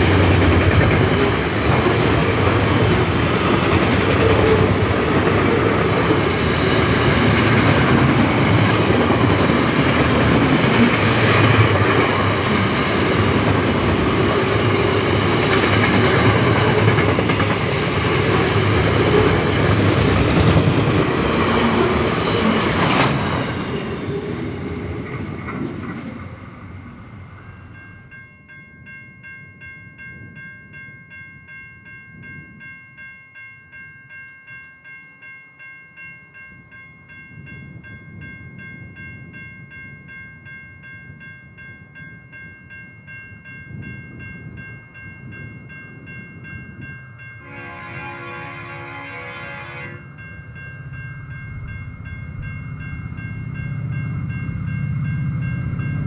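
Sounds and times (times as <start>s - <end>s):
train rumbling past: 0.0s - 28.2s, 43.1s - 56.0s
locomotive horn: 47.4s - 50.1s.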